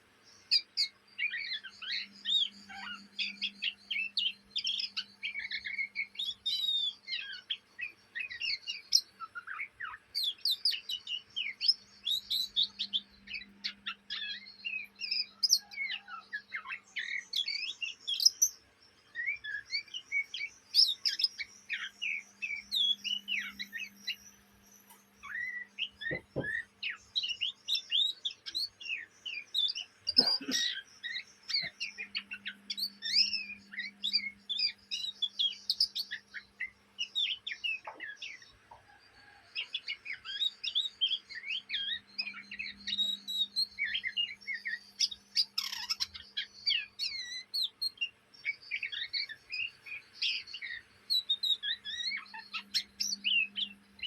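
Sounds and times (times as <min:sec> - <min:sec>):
bird chirping and whistling: 0:19.2 - 0:24.2, 0:24.9 - 0:38.4, 0:40.2 - 0:48.1, 0:48.7 - 0:53.8.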